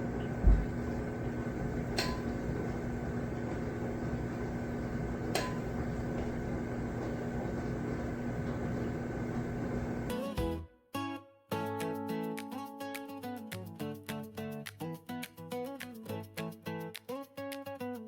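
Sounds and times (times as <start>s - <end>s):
kitchen hum: 0.0s - 10.1s.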